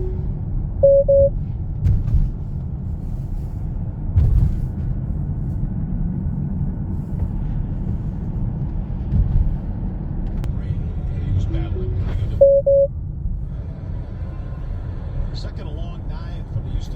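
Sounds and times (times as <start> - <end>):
short beeps: 0.0 - 1.3, 11.5 - 12.9
road and tyre rumble: 0.0 - 16.9.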